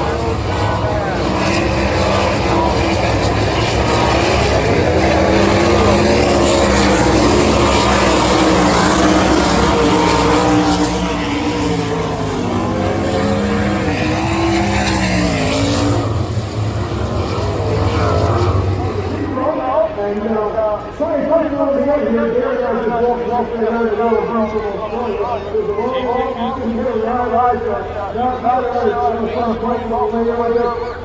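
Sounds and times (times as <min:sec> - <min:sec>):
racing car engines passing: 0:00.0 - 0:23.0.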